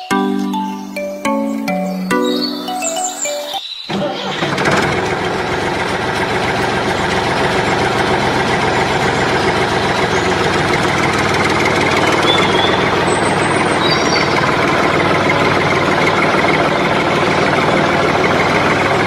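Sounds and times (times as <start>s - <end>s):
deep engine idling: 4.0s - 19.0s.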